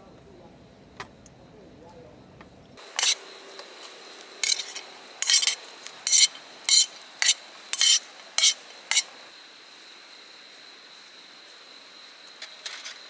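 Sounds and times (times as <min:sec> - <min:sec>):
faint high whine: 0:00.0 - 0:13.0
scraping strokes: 0:02.8 - 0:03.3, 0:04.4 - 0:09.2.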